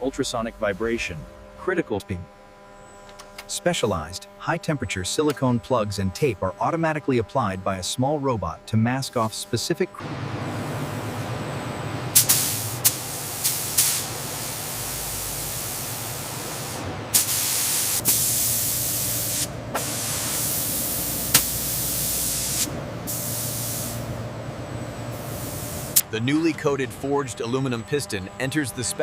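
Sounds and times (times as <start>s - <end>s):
low machine hum: 0.0s - 29.0s
spray gun hissing: 12.1s - 24.2s, 25.1s - 26.0s
spray gun click: 12.2s - 14.1s, 21.3s - 21.6s.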